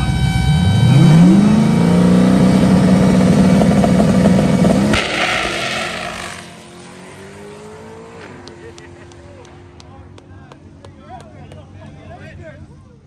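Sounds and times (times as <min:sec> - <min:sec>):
drag car engine revving: 0:00.5 - 0:10.9.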